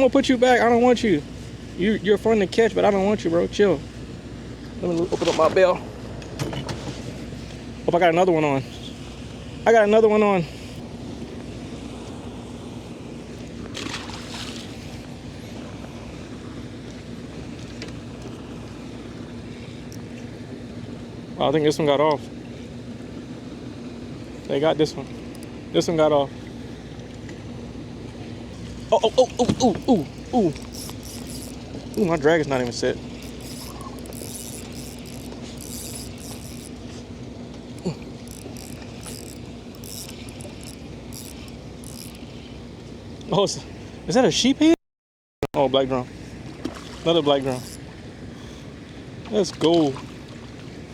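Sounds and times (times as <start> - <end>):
boat motor humming: 0.0 - 44.6, 45.6 - 50.9
fishing reel whirring and clicking: 25.2 - 25.5, 29.8 - 42.4, 47.4 - 47.9.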